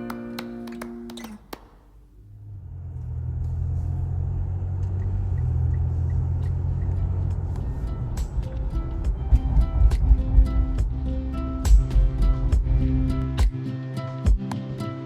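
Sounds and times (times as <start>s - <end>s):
car rumbling on road: 2.2s - 13.3s.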